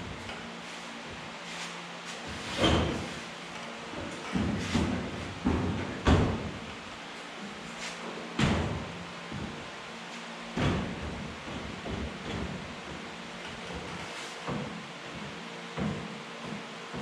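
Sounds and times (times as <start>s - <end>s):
sheet metal clunks and thuds: 4.2s - 6.6s, 10.5s - 13.0s.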